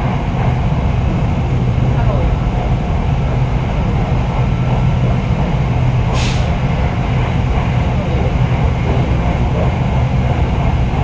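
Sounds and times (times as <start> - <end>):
electric train rumbling: 0.0 - 11.0.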